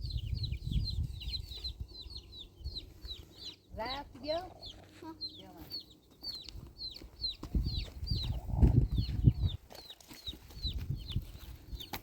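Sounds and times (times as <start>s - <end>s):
chick peeping: 0.0s - 12.0s.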